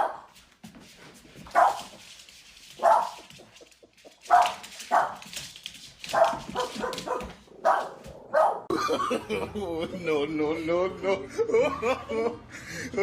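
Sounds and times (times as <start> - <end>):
dog barking: 0.0 - 0.3, 1.6 - 1.9, 2.8 - 3.2, 4.3 - 5.2, 6.1 - 8.7.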